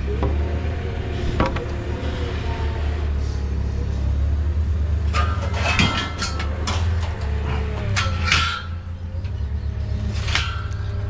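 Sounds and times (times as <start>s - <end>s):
low engine hum: 0.0s - 11.0s
metal clanks and rattles: 4.9s - 11.0s.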